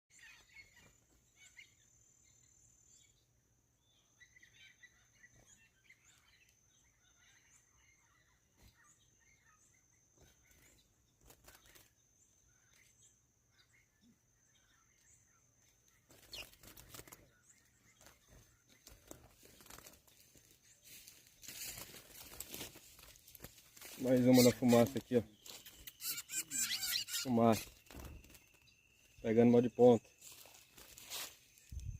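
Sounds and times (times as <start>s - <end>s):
faint bird chirps: 0.1s - 31.9s
close rustling and crinkling: 18.0s - 26.0s, 30.2s - 31.8s.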